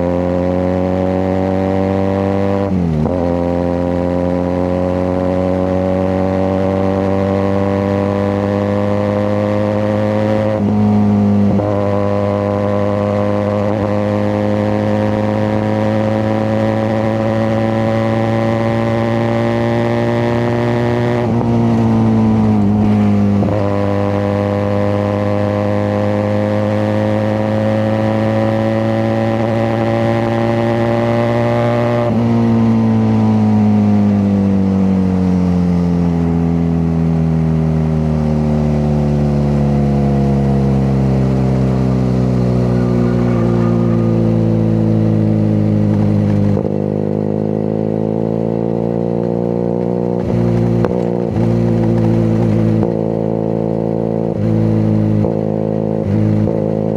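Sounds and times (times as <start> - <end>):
motorcycle engine and exhaust: 0.0 - 56.9.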